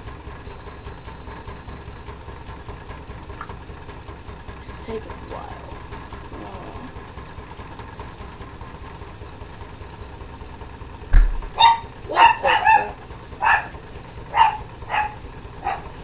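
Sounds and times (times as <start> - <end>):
small engine running: 0.0 - 16.0
dull thump: 11.1 - 11.6
dog barking: 11.4 - 16.0.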